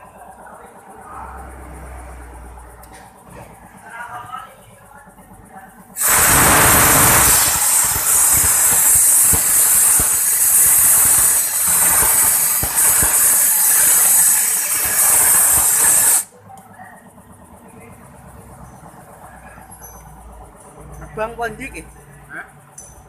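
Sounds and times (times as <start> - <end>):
pressurised air jet hissing: 6.0 - 16.3.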